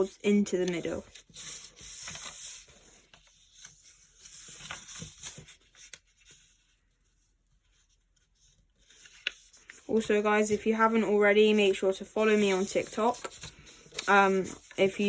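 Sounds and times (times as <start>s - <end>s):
paper being folded and creased: 0.0s - 15.0s
paper rustling and scraping: 0.0s - 15.0s
sharp paper ticks: 12.3s - 14.8s.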